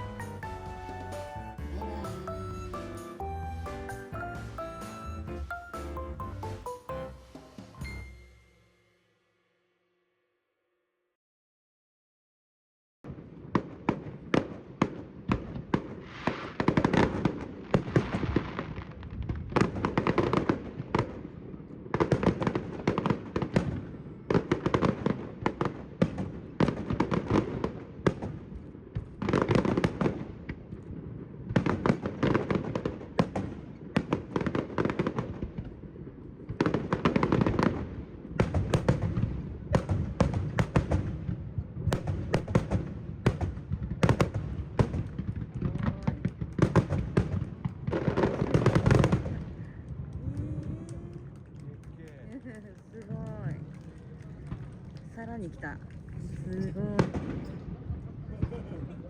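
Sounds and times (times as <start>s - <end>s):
fireworks bangs and crackling: 0.0s - 8.4s, 13.1s - 59.0s.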